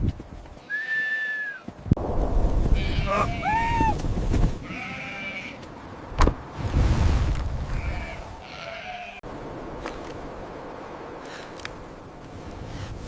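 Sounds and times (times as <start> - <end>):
low rumbling wind: 1.7 - 8.4
sheep bleating: 2.8 - 4.0, 4.6 - 5.6, 7.8 - 9.2.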